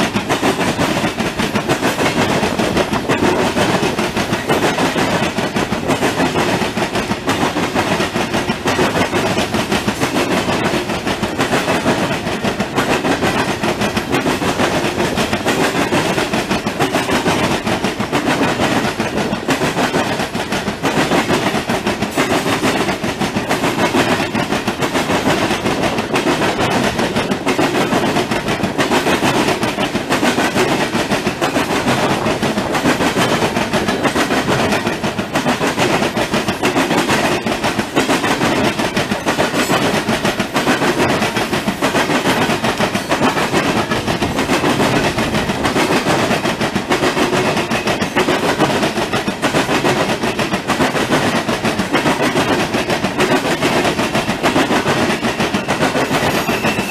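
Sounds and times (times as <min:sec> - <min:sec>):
steel wheels clattering on rails: 0:00.0 - 0:56.9.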